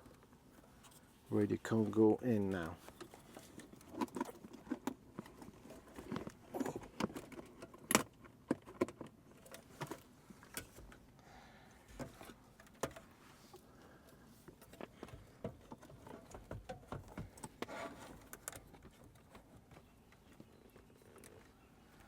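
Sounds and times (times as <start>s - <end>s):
plastic parts clicking and rattling: 2.6s - 11.0s.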